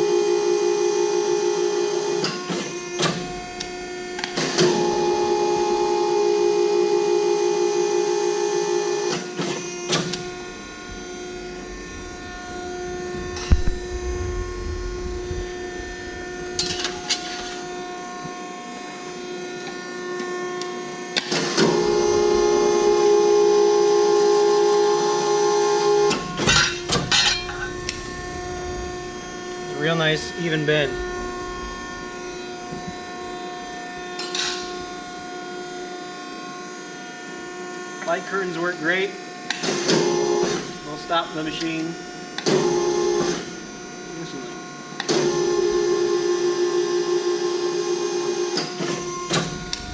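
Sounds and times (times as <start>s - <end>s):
hydraulic pump humming: 0.0s - 36.0s, 45.0s - 49.9s
low rumble: 10.2s - 18.1s, 26.7s - 35.2s, 49.5s - 49.9s.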